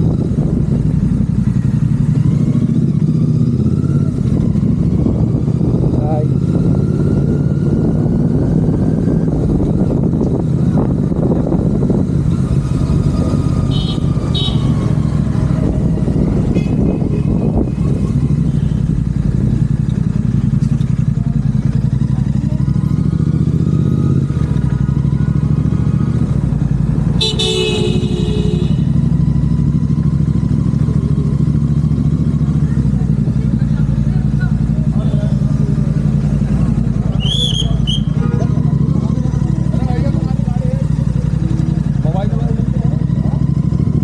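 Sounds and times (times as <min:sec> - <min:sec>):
motorcycle engine running: 0:00.0 - 0:44.0
vehicle horn: 0:13.7 - 0:14.9, 0:16.5 - 0:17.6, 0:27.2 - 0:29.0.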